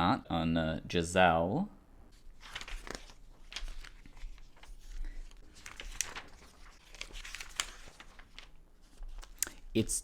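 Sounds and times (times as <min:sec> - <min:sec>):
magazine pages rustling: 0:02.1 - 0:09.7
page flaps: 0:02.4 - 0:09.6.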